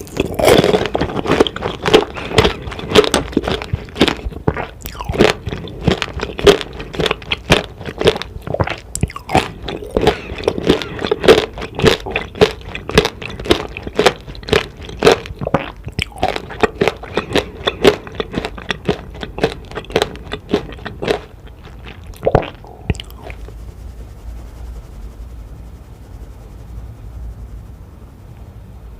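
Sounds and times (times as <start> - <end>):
crunchy candy chewing: 0.0 - 23.6.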